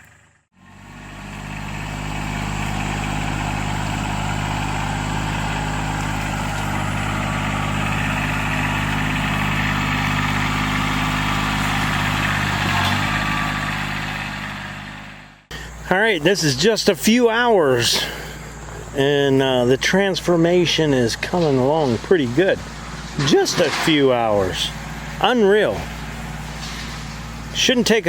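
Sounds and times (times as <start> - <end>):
brush cutter engine running: 0.0 - 28.0.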